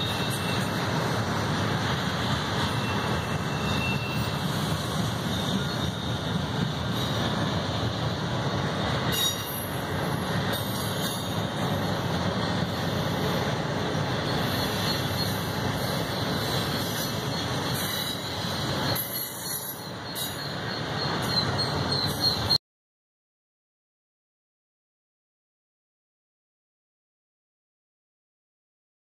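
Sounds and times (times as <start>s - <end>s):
high squeal of wheel flanges: 0.0s - 1.0s, 2.6s - 7.5s, 9.1s - 11.6s, 14.2s - 22.6s
steel wheels rumbling on rails: 0.0s - 22.6s.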